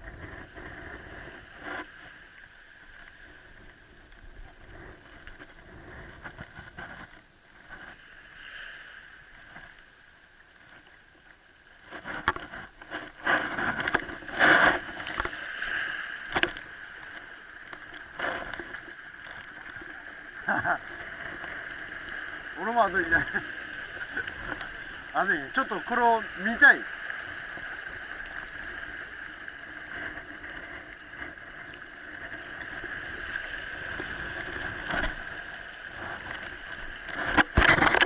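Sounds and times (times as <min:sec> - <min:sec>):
water sloshing and splashing: 0:08.8 - 0:38.0.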